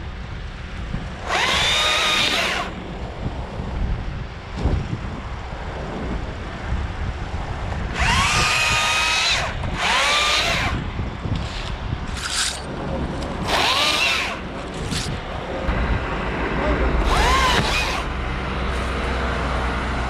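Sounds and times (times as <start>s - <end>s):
wind rumbling on microphone: 0.0s - 20.0s
chainsaw whining: 1.2s - 2.8s, 7.9s - 10.8s, 13.4s - 15.2s, 17.0s - 18.9s.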